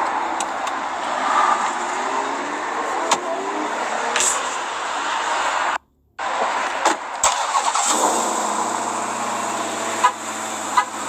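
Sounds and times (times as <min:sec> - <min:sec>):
car engine starting and idling: 0:00.0 - 0:11.0.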